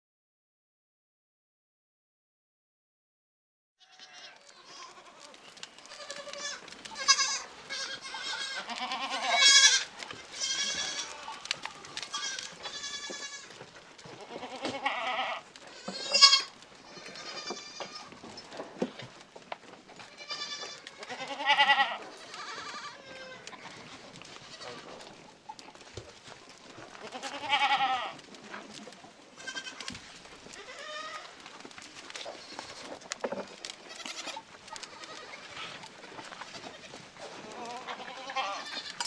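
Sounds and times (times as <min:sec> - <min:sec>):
livestock bleating: 0:03.8 - 0:18.2, 0:20.0 - 0:25.1, 0:27.0 - 0:28.2, 0:29.4 - 0:31.4, 0:33.8 - 0:39.0.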